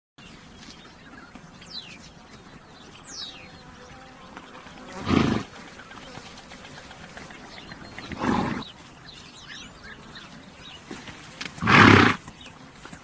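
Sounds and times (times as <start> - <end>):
horse snorting: 5.0 - 5.5, 8.0 - 8.7, 11.6 - 12.2.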